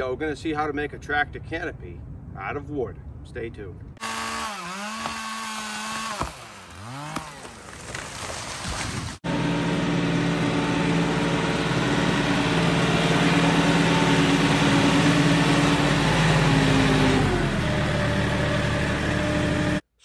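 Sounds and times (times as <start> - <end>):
tractor engine running: 9.3 - 19.8.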